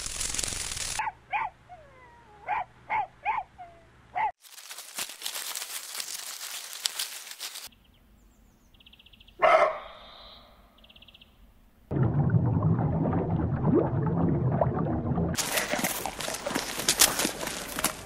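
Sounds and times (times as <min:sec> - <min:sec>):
dog barking: 0:01.0 - 0:01.6, 0:02.4 - 0:04.4, 0:09.4 - 0:10.1.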